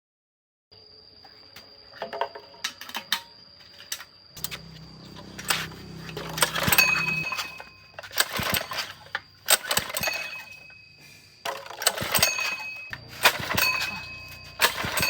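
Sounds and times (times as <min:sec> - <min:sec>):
metallic clicks and clinks: 0:03.9 - 0:15.0
low hum: 0:04.4 - 0:08.0, 0:12.9 - 0:15.0
thin high tone: 0:04.4 - 0:08.2, 0:12.4 - 0:15.0.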